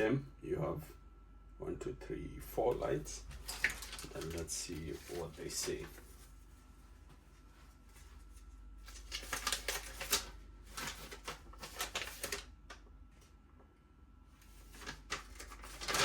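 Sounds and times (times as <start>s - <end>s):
packaging rustling: 2.8s - 12.8s, 14.5s - 16.0s.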